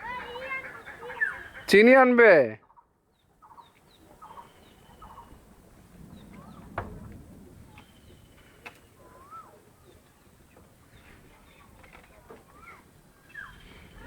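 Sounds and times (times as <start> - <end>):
bird chirps: 0.0 - 1.7, 2.6 - 5.4, 7.7 - 11.8, 12.5 - 14.0
chicken clucking: 0.0 - 1.7.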